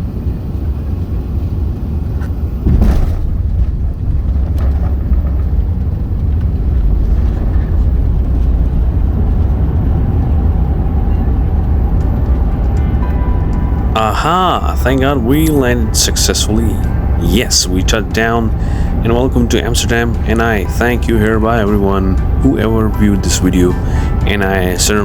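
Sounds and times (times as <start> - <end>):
airliner cabin rumble: 0.0 - 25.0
wheels touching down thump: 2.2 - 9.2.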